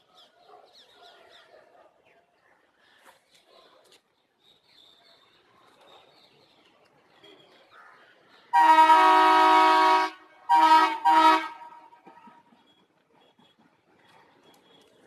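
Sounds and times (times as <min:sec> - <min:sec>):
locomotive horn blasts: 0:08.6 - 0:12.0.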